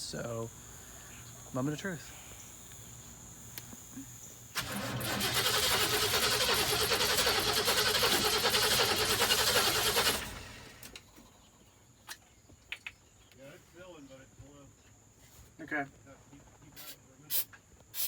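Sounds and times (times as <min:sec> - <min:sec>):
engine cranking on starter: 0:04.5 - 0:11.0.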